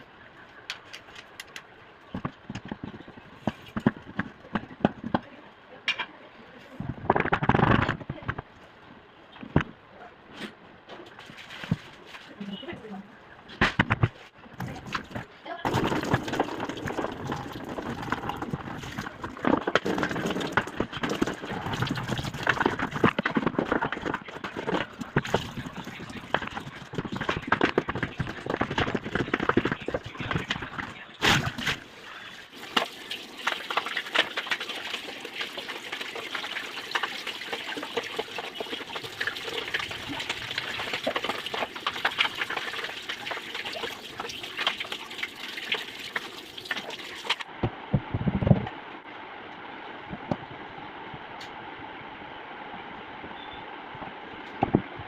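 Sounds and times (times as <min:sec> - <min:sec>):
water splashing in washing machine tub: 0:11.0 - 0:12.4, 0:14.6 - 0:47.5.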